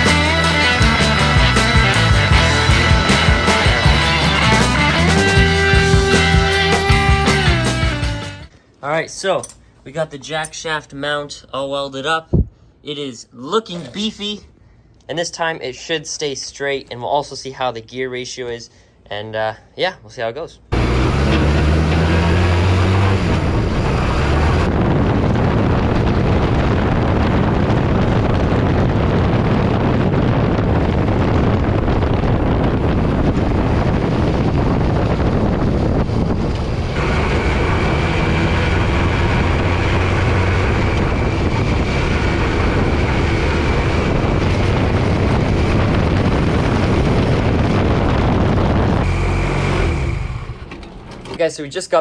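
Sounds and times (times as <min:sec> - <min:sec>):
go-kart engine running: 0:00.0 - 0:07.3, 0:20.7 - 0:27.2, 0:31.6 - 0:51.3
wind noise on microphone: 0:00.0 - 0:08.5, 0:12.3 - 0:12.6, 0:21.2 - 0:50.7.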